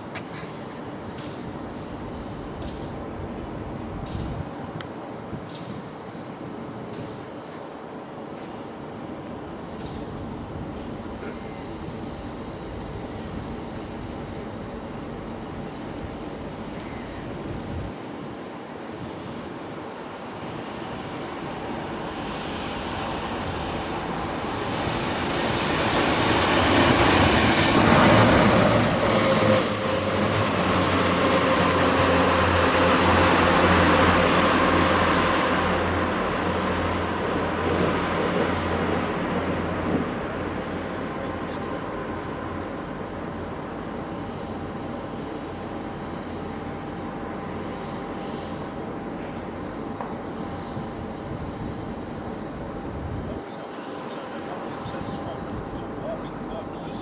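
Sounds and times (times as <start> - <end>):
train passing: 7.8 - 57.0
high wheel squeal: 27.0 - 36.9.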